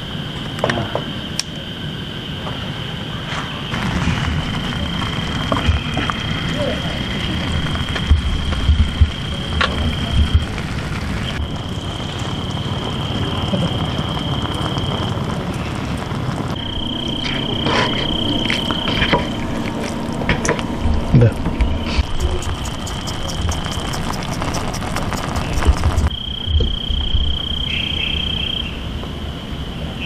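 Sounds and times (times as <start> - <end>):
insects chirring: 0.0 - 30.0
low rumble: 3.7 - 27.6.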